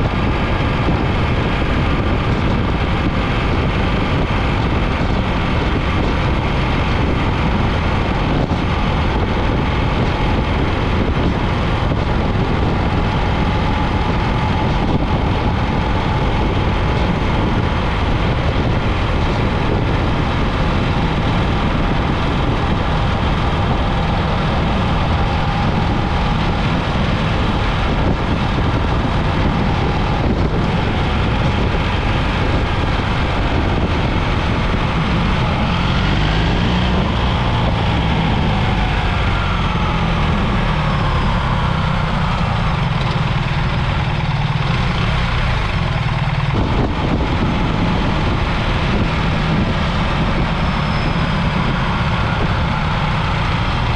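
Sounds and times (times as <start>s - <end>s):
motorcycle engine running: 0.0s - 53.9s
wind noise: 0.0s - 53.9s.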